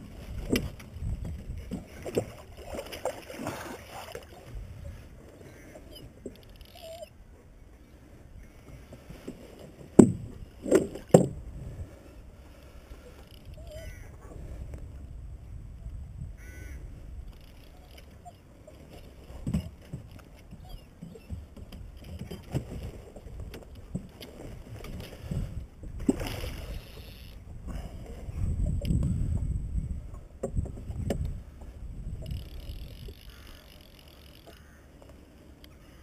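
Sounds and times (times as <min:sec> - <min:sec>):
water lapping against boat: 0:00.0 - 0:07.1, 0:17.3 - 0:29.5.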